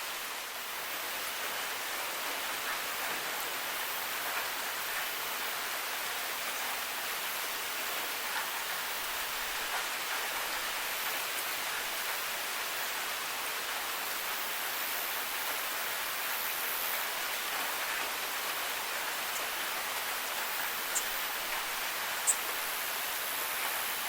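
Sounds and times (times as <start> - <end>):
rain falling: 0.0 - 24.0
sharp drip ticks: 19.0 - 22.9.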